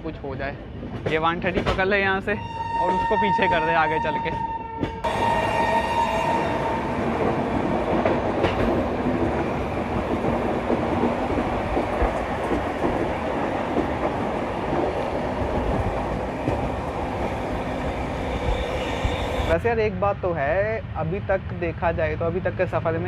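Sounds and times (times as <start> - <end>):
train rumble and rattle: 0.0 - 23.0
wheels clicking over rail joints: 7.2 - 17.0.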